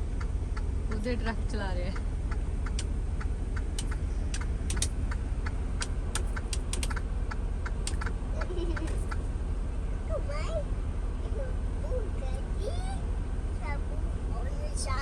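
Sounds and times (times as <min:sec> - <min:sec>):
engine and road rumble: 0:00.0 - 0:15.0
sharp irregular clicks: 0:01.9 - 0:08.1.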